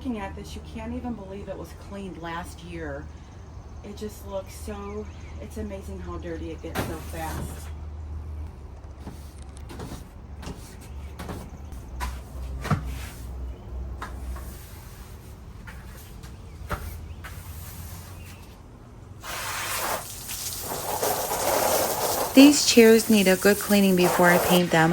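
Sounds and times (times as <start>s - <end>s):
steady hiss: 19.2s - 24.9s.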